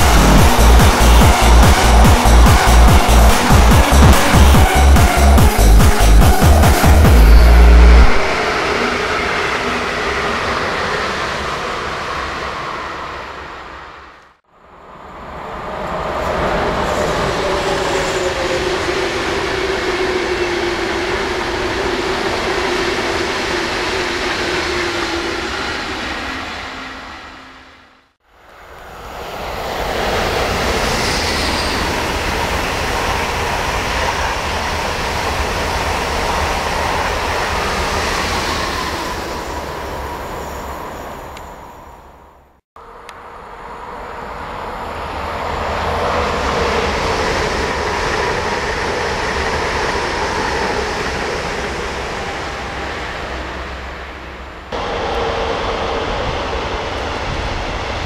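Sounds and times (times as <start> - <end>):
high whine: 0.0 - 15.4
trains passing with rumble: 0.0 - 58.0.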